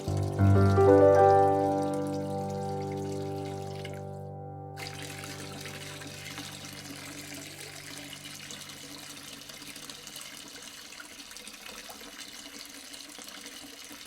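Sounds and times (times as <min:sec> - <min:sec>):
water trickling: 0:00.0 - 0:14.0.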